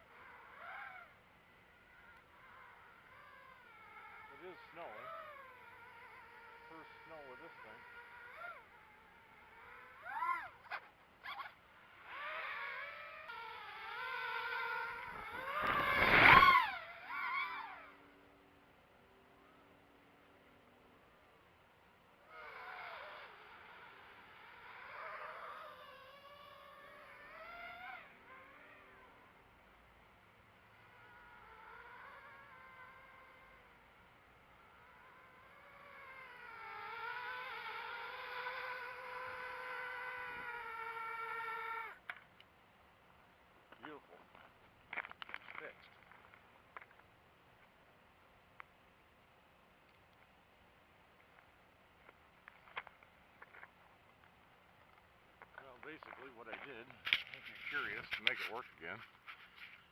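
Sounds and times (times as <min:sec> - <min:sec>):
quadcopter motors whining: 0:00.0 - 0:18.3, 0:22.2 - 0:42.3, 0:55.4 - 0:59.9.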